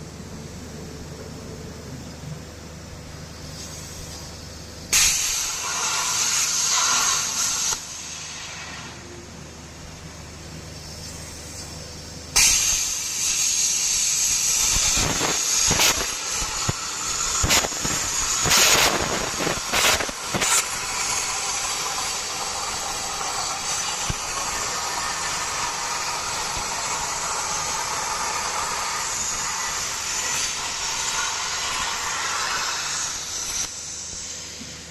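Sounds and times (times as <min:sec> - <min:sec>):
plasma cutter torch hissing: 0:03.2 - 0:09.2, 0:09.9 - 0:34.9
sharp pops: 0:14.6 - 0:21.1.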